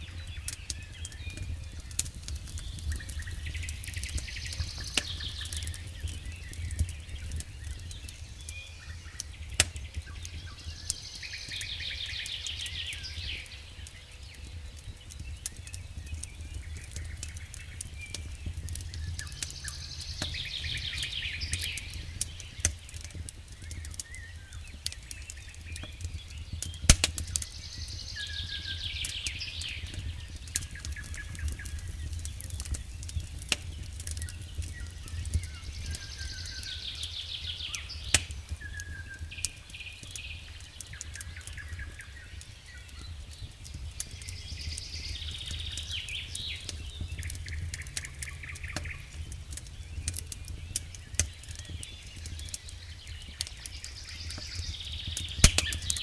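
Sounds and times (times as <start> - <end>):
campfire crackling: 0.0 - 56.0
songbird singing: 0.0 - 56.0
steady low rumble: 43.6 - 52.4.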